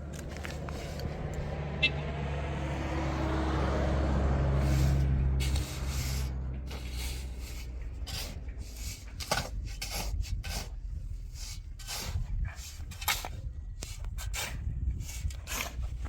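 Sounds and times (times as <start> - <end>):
low engine hum: 0.0 - 16.0
short scraping strokes: 4.4 - 16.0.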